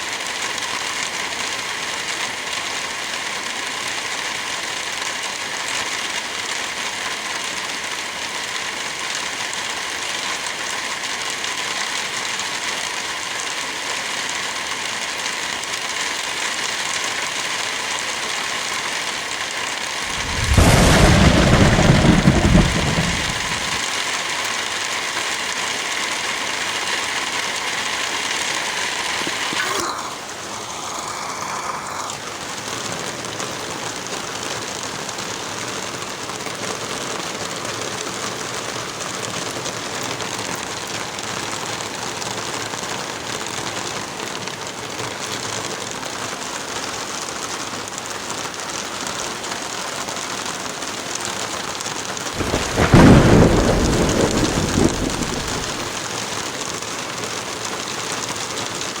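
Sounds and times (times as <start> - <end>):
heavy rain falling: 0.0 - 59.0
low rumble of thunder: 20.1 - 23.8, 52.4 - 56.0.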